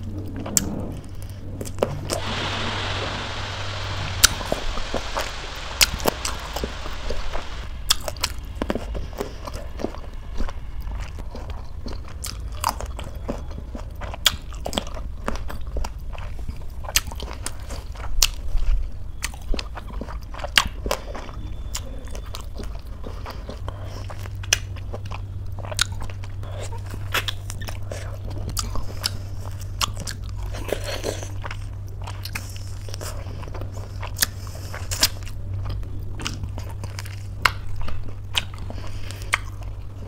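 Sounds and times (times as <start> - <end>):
steady hiss: 1.9 - 12.7
chewing grapes: 11.0 - 40.0.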